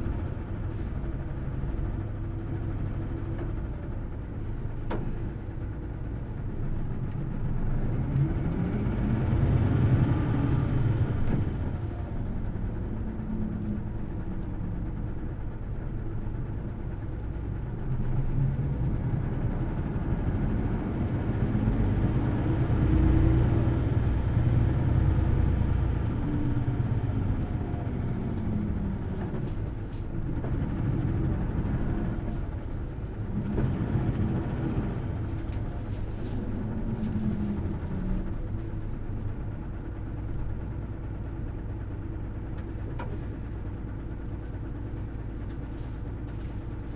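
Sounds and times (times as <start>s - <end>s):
bus engine revving: 7.4s - 11.8s, 18.2s - 38.8s.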